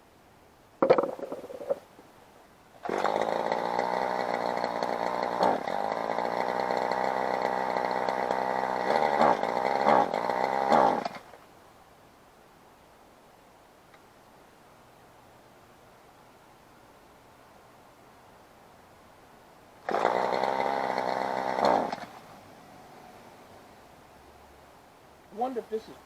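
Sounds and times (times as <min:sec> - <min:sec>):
string trimmer engine revving: 0:02.8 - 0:11.2, 0:19.9 - 0:23.3.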